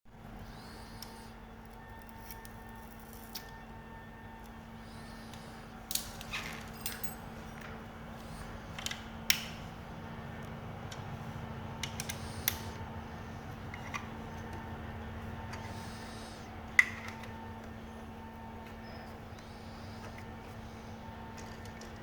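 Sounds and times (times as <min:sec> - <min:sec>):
steady low hum: 0:00.1 - 0:22.0.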